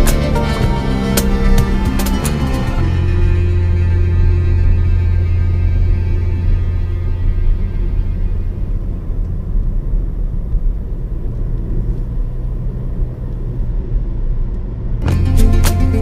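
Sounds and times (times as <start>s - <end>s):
plucked string music: 0.0s - 10.1s, 15.0s - 16.0s
vehicle rumbling on road: 0.0s - 16.0s.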